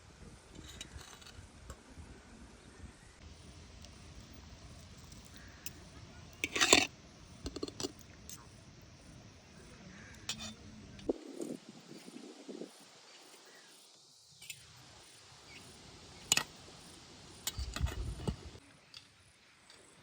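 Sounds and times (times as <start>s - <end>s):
utensils clinking on dishware: 10.2s - 10.6s.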